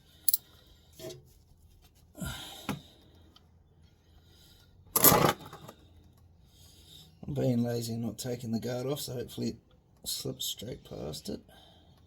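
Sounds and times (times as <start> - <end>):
hand tools and metal parts clinking: 0.2 - 0.5.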